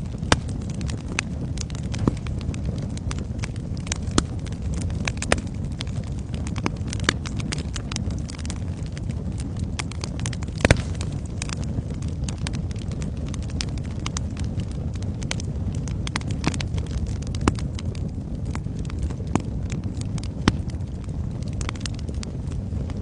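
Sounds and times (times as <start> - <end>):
fire crackling and popping: 0.0 - 23.0
fire rumbling in fireplace: 0.0 - 23.0.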